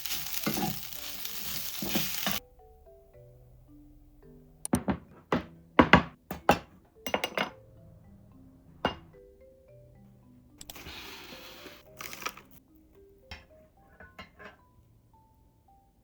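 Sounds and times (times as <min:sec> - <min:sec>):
utensils and dishes clinking: 0:00.0 - 0:02.4, 0:07.0 - 0:07.6, 0:10.6 - 0:12.6, 0:13.3 - 0:14.6
soft background music: 0:00.0 - 0:16.0.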